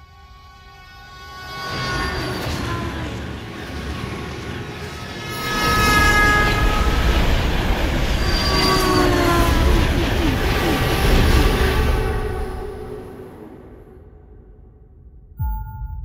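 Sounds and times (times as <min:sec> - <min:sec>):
train horn blasts: 0:00.0 - 0:03.8, 0:04.9 - 0:07.7
train rumbling past: 0:01.0 - 0:14.2.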